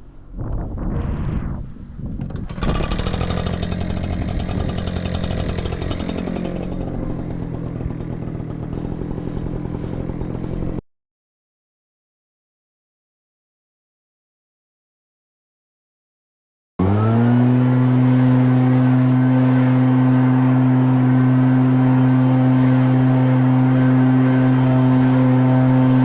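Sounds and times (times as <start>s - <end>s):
wind on microphone: 0.0s - 4.8s
leaf blower engine running: 2.4s - 10.8s, 16.8s - 26.0s.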